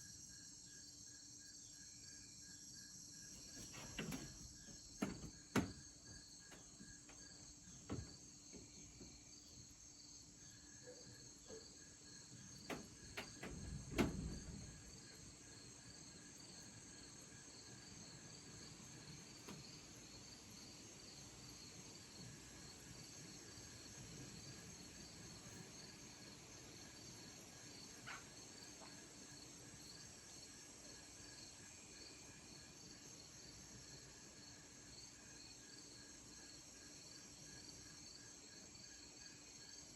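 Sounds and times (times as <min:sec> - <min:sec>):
crickets trilling: 0:00.0 - 0:39.9
soft knocks: 0:03.4 - 0:09.1.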